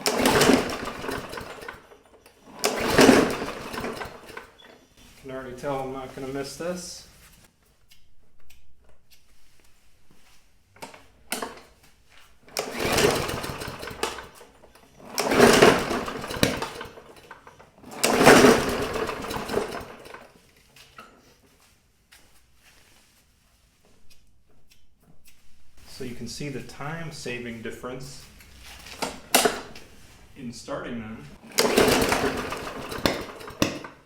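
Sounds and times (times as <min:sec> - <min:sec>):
recoil starter yanks: 0:00.0 - 0:04.8, 0:12.5 - 0:20.2, 0:31.4 - 0:34.0
mower engine turning over: 0:00.0 - 0:04.9, 0:10.8 - 0:11.8, 0:12.4 - 0:20.5, 0:28.1 - 0:30.2, 0:31.4 - 0:34.0.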